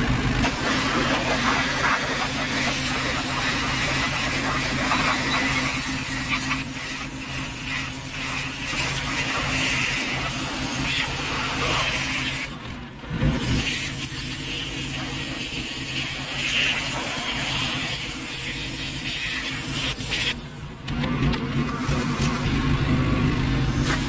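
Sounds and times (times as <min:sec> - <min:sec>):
hiss: 0:00.4 - 0:12.6, 0:13.2 - 0:20.4, 0:23.6 - 0:24.0.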